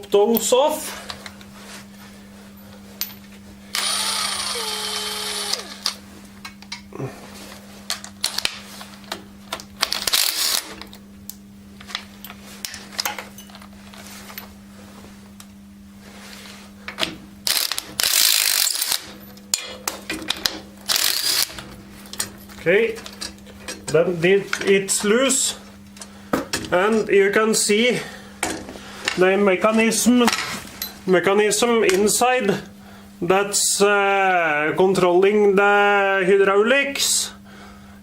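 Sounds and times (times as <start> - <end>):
steady low hum: 0.0 - 38.0
ratchet wrench clicking: 17.5 - 19.0, 20.9 - 21.5.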